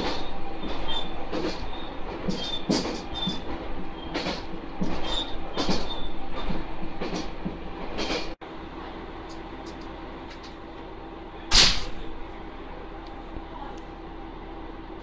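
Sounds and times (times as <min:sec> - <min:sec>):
wheels knocking over rail joints: 0:00.0 - 0:08.4
railcar engine hum: 0:00.0 - 0:15.0
train wheels rumbling: 0:00.0 - 0:15.0.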